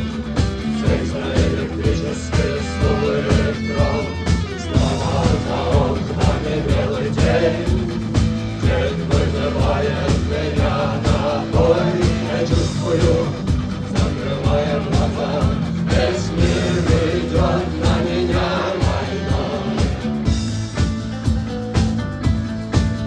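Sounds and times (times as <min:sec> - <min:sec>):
rock band playing live: 0:00.0 - 0:23.0
steady drum beat: 0:00.0 - 0:23.0.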